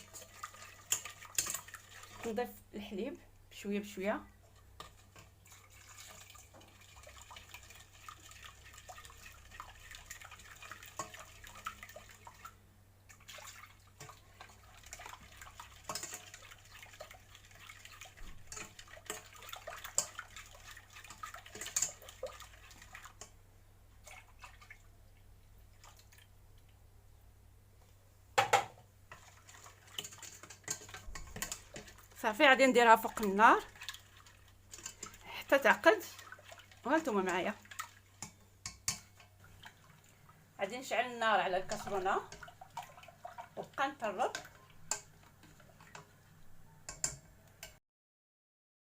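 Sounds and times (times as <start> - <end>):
milk pouring into saucepan: 0.0 - 2.3, 4.5 - 26.8, 29.1 - 32.2, 32.9 - 40.6, 41.4 - 47.5
whisk clicking against pan: 0.0 - 2.3, 4.4 - 12.4, 13.1 - 23.4, 28.4 - 32.2, 32.8 - 39.9, 41.6 - 47.8.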